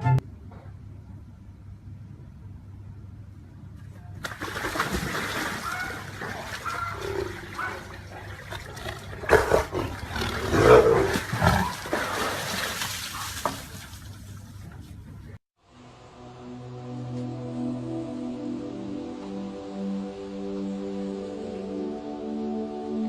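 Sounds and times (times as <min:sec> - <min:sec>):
animal calls: 0:05.4 - 0:12.0.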